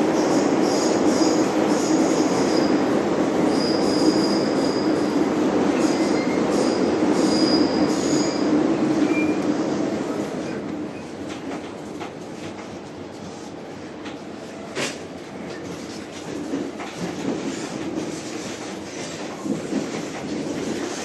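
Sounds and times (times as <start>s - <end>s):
high-pitched wheel squeals: 3.5s - 4.9s, 7.2s - 8.4s
train wheels rumbling: 13.9s - 21.0s.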